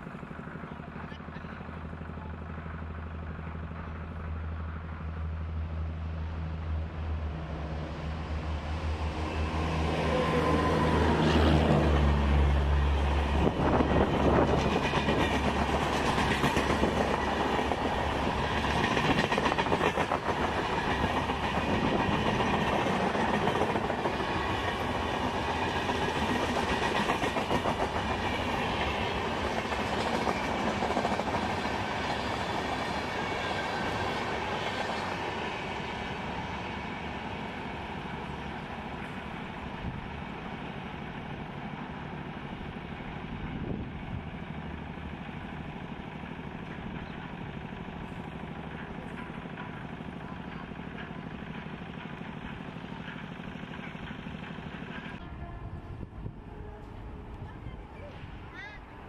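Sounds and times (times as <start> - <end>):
locomotive hum: 0.0 - 59.0
wheels clicking over rail joints: 46.1 - 55.2.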